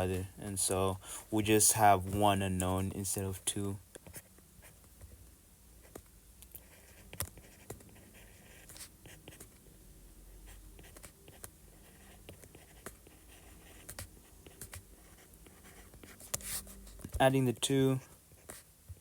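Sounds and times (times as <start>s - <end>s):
pen scratching on surface: 6.6s - 9.6s, 10.5s - 17.2s.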